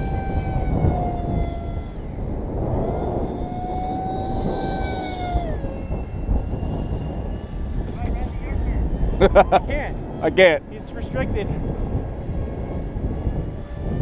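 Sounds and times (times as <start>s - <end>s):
model airplane motor whining: 0.0s - 14.0s
wind rumble on microphone: 0.0s - 14.0s.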